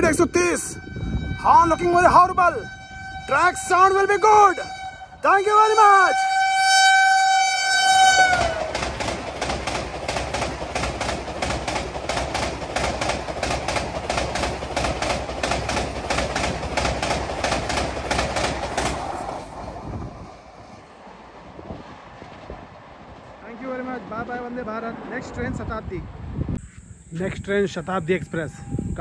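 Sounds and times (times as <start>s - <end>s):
train horn: 0.5s - 9.0s, 28.4s - 29.0s
train wheels clickety-clack: 8.0s - 20.0s.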